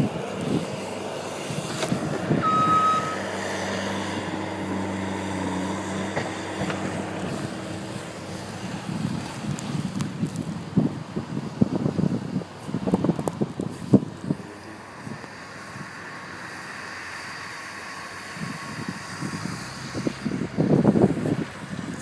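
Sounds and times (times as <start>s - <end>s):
vehicle engine humming: 0.0s - 22.0s
short high beep: 2.4s - 3.2s.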